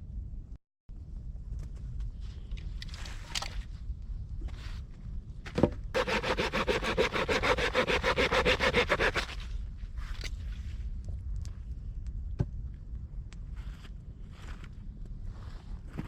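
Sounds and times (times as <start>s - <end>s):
hand saw cutting wood: 6.0s - 9.5s.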